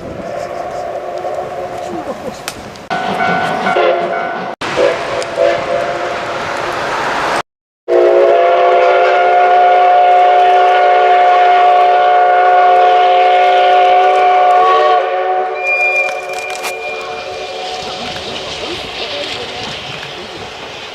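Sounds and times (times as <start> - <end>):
train running noise: 0.0 - 15.1, 15.7 - 20.9
steam locomotive whistle: 2.9 - 6.2, 7.9 - 18.1.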